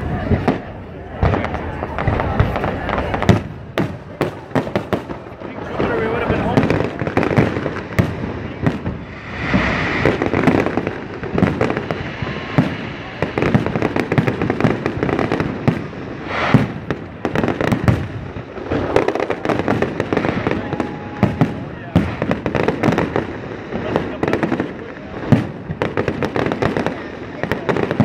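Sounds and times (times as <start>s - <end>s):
fireworks bangs and crackling pops: 0.0s - 28.0s.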